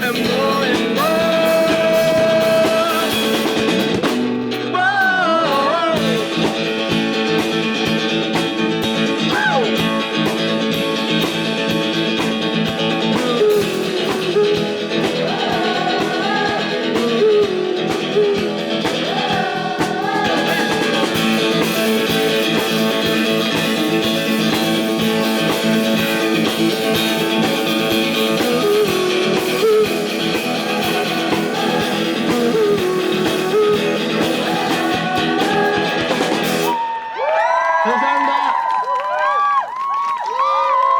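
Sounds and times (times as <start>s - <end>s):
bending electric guitar lead: 0.0s - 36.8s
rock band playing live: 0.0s - 36.8s.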